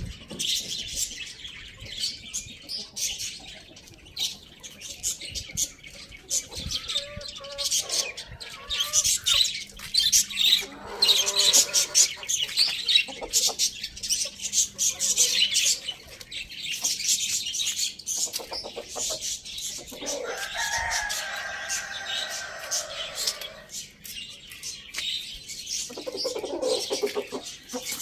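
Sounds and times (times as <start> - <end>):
small birds twittering: 0.0 - 28.0
rooster crowing: 20.2 - 23.6.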